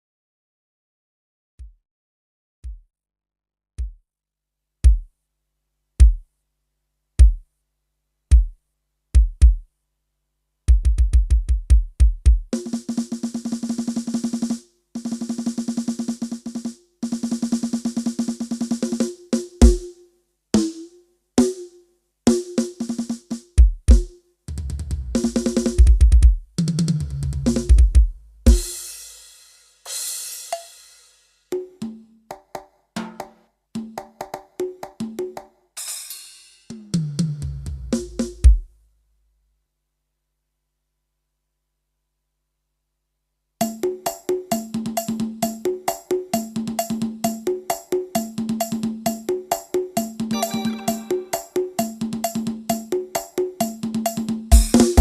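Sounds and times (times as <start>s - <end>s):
snare drum rolls: 54.5s - 55.0s.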